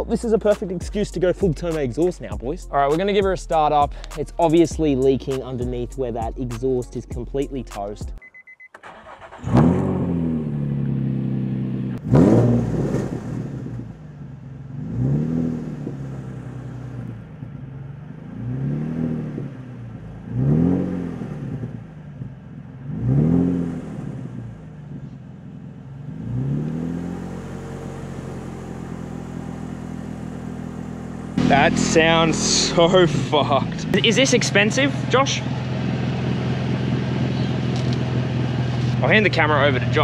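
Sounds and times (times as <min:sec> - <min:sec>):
car engine starting: 0:08.6 - 0:40.0
engine idling with throttle blips: 0:27.2 - 0:40.0.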